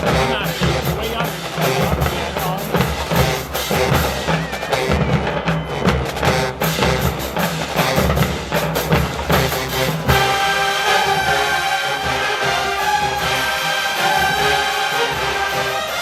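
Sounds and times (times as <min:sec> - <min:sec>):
horns playing held chords: 0:00.0 - 0:16.0
marching drums beating cadence: 0:00.0 - 0:16.0.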